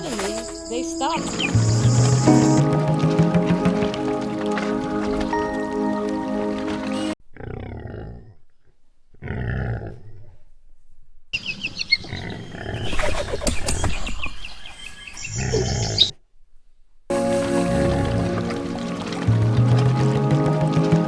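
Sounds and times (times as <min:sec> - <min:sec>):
large animal roaring: 0:07.3 - 0:08.4
low growling: 0:07.3 - 0:10.4.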